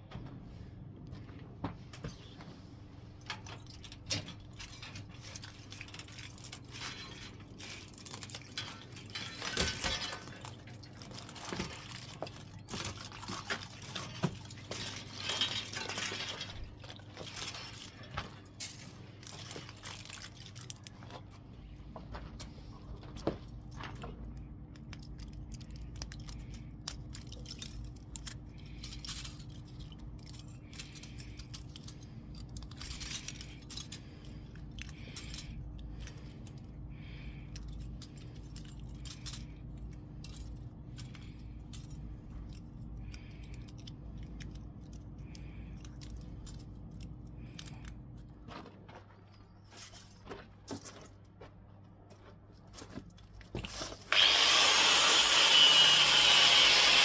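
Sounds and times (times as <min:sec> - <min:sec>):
small hard objects clinking: 0:03.3 - 0:21.8, 0:24.3 - 0:51.3.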